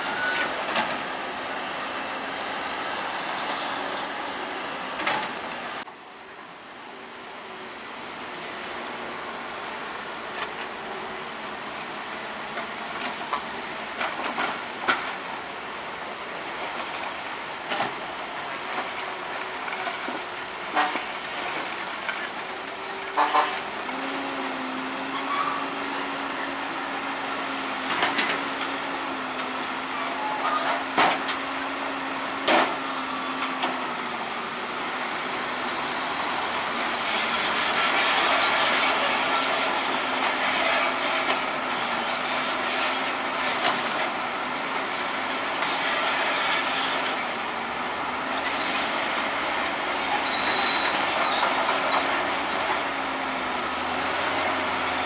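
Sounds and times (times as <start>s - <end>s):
high-pitched hiss and squeal: 0.0s - 1.2s, 34.9s - 44.0s, 45.1s - 47.3s, 48.0s - 53.2s
diesel machinery running: 8.3s - 55.0s.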